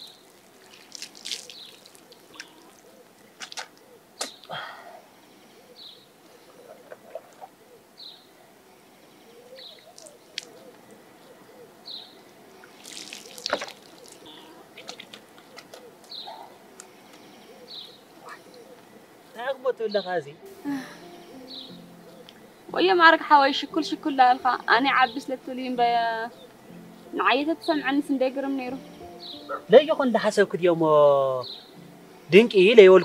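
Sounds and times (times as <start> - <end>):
small bird chirping: 0.0 - 4.5, 5.5 - 20.4, 21.2 - 22.9, 24.6 - 27.9, 28.5 - 29.7, 31.4 - 31.9.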